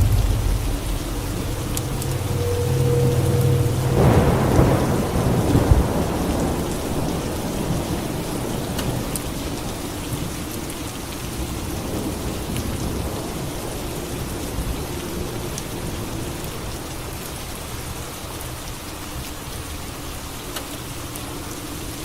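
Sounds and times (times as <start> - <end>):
thunder clap rumbling: 0.0 - 9.0
steady rain falling: 0.0 - 22.0.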